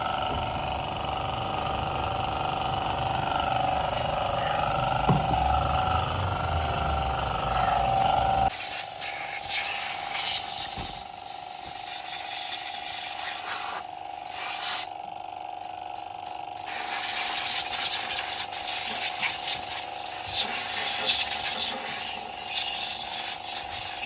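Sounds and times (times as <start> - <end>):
high-pressure spray hissing: 8.5 - 14.9, 16.7 - 24.0.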